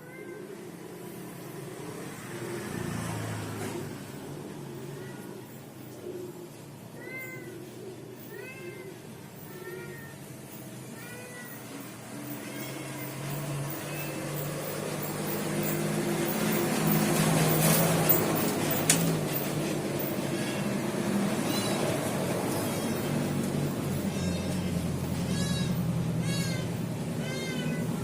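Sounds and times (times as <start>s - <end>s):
cat meowing: 0.0s - 0.5s, 7.0s - 7.6s, 8.3s - 10.3s, 10.9s - 11.8s, 24.1s - 28.0s.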